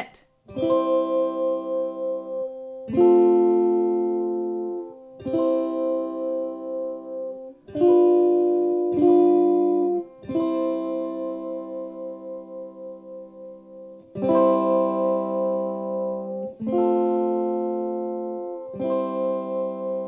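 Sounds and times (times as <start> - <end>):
electric ukulele chords strummed: 0.6 - 20.0.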